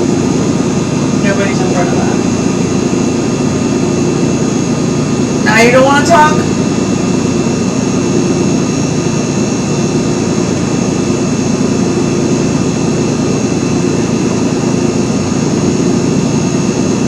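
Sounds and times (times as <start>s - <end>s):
electric fan whirring: 0.0s - 17.0s.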